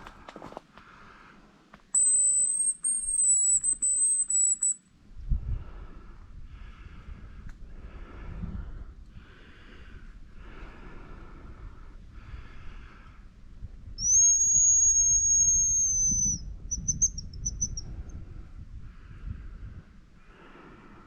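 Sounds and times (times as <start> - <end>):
bird lure whistle call: 2.0 - 4.8, 14.0 - 17.9.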